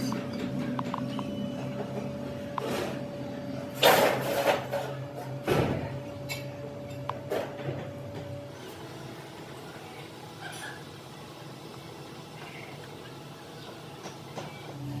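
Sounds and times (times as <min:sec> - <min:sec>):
machine hum: 0:00.0 - 0:15.0
metal knocks and scrapes: 0:03.8 - 0:05.4.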